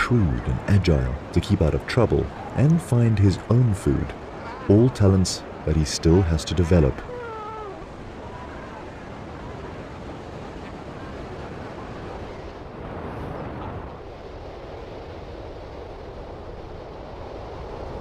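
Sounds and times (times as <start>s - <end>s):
ocean surf: 0.0s - 18.0s
wind: 0.0s - 18.0s.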